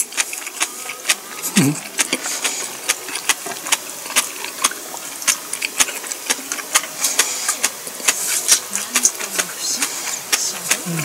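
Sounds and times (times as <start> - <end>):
chewing with wet mouth clicks: 0.0 - 11.0
person humming: 0.6 - 2.0, 8.8 - 11.0.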